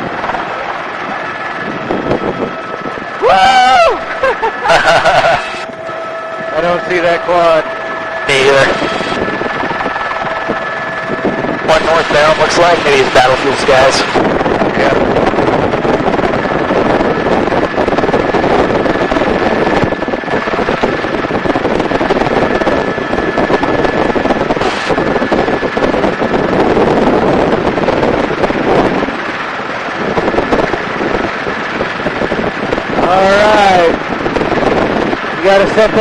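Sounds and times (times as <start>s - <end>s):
faint high whine: 0.0s - 32.2s
helicopter rotor and engine noise: 0.0s - 36.0s
wind buffeting microphone: 0.0s - 36.0s.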